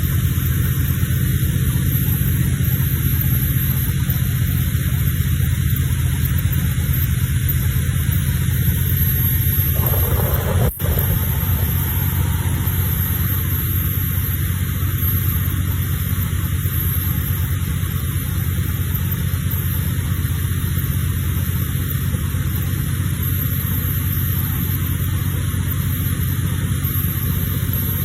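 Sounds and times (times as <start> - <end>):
boat engine rumbling: 8.8 - 16.0.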